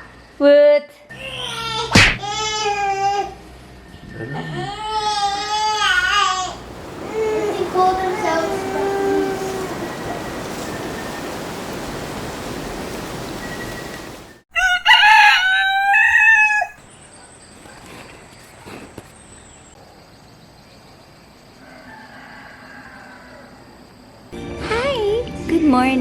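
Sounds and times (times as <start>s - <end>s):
steady hiss: 6.5s - 14.4s
rooster crowing: 6.5s - 16.9s, 21.6s - 23.8s.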